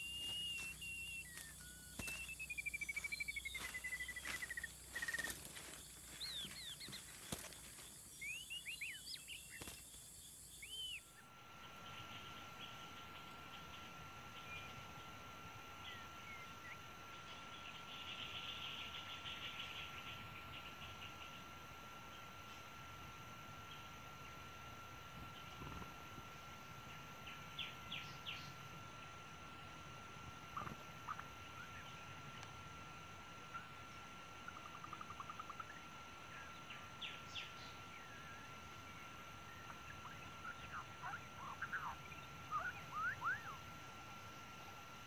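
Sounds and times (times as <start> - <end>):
bird trill: 0.0 - 7.5, 39.5 - 43.7
birds chirping: 0.0 - 22.4, 23.3 - 45.0
rapid pulsing animal trill: 33.4 - 36.5.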